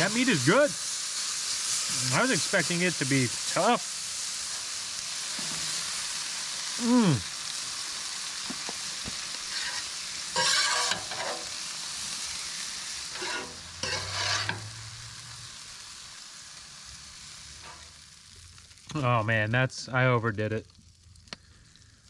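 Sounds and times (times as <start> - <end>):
steak sizzling: 0.0 - 19.4, 20.3 - 22.0
short falling voice-like sound: 6.8 - 7.2
stirring and scraping: 9.5 - 11.5, 13.2 - 14.7.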